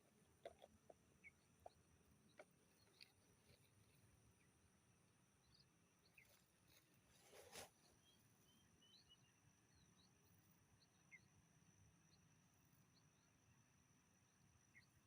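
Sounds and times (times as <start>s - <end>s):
bird chirps: 0.0s - 4.6s, 5.4s - 11.4s, 14.6s - 15.0s
soft rustle: 2.6s - 4.3s, 6.2s - 8.0s.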